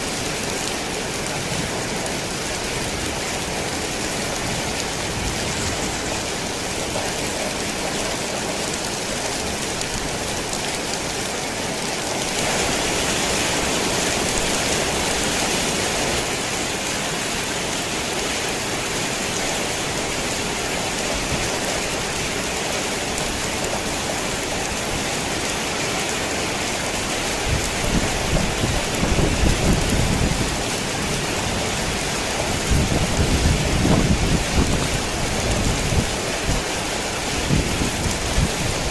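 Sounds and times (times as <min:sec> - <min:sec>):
heavy rain on a tin roof: 0:00.0 - 0:38.9
thunder rumbling: 0:27.3 - 0:38.9.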